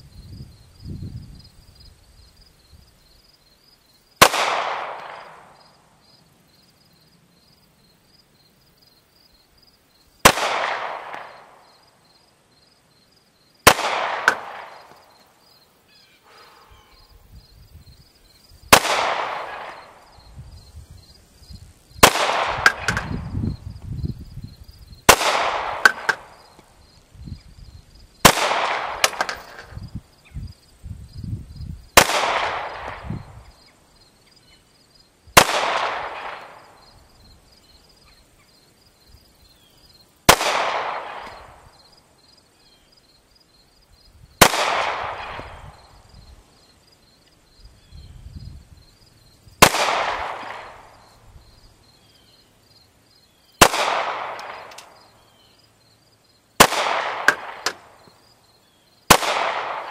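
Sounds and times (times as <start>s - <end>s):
pistol shots with echo: 4.2s - 5.6s, 10.2s - 11.7s, 13.6s - 15.0s, 18.7s - 20.0s, 22.0s - 23.2s, 25.1s - 26.5s, 28.2s - 29.6s, 32.0s - 33.3s, 35.4s - 36.8s, 40.3s - 41.6s, 44.4s - 45.7s, 49.6s - 51.0s, 53.6s - 55.0s, 56.6s - 58.1s, 59.1s - 59.9s.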